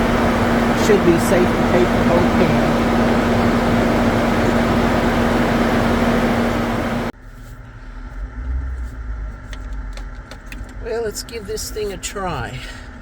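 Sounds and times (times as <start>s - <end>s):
air conditioning compressor hum: 0.0s - 7.1s
car engine running: 0.0s - 12.8s.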